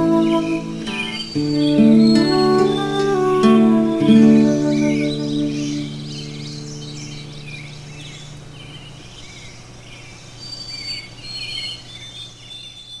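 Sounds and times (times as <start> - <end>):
high whistled bird notes: 0.0 - 9.0
small birds chirping: 0.0 - 13.0.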